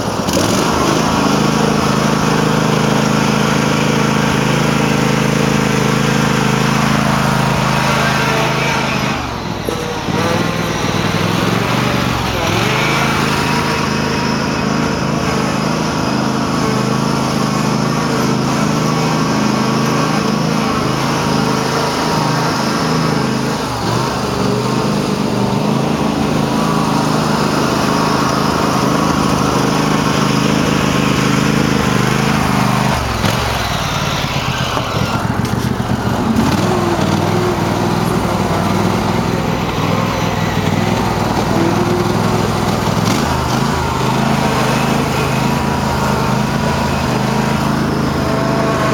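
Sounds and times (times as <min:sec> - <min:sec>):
garden tractor engine running: 0:00.0 - 0:48.9.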